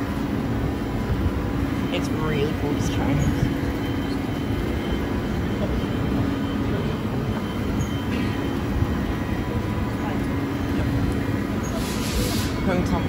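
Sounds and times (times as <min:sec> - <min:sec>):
electric train running: 0:00.0 - 0:13.0.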